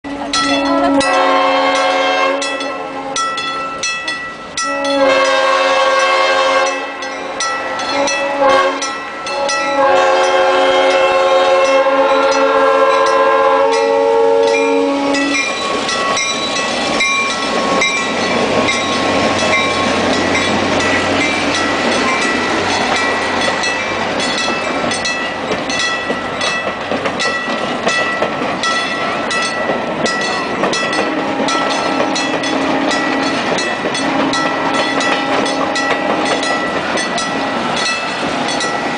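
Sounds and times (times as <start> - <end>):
train horn blasts: 0.0 - 3.3, 4.6 - 7.0, 7.8 - 15.5, 31.0 - 36.5
train rumble: 0.1 - 38.9
train wheel clatter: 0.3 - 38.9.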